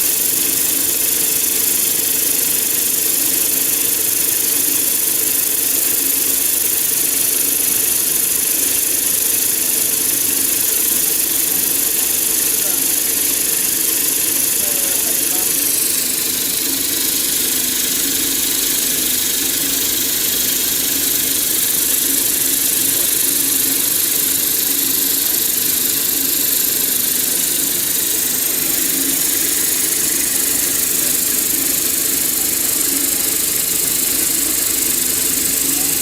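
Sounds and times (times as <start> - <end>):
circular saw machine running: 0.0 - 36.0.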